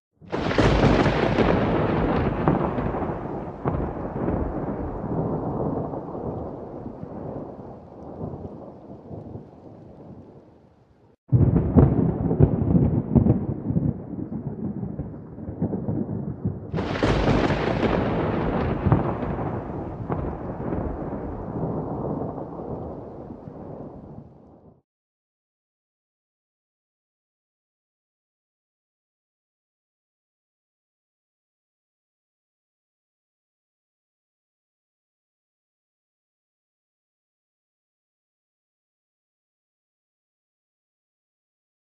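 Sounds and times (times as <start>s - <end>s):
volcano eruption rumbles: 11.3s - 24.3s.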